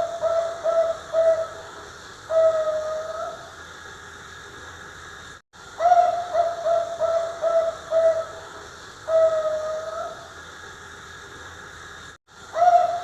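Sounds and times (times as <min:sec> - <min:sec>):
dove cooing: 0:00.0 - 0:03.5, 0:05.8 - 0:10.2, 0:12.6 - 0:13.0
steady hiss: 0:00.0 - 0:13.0.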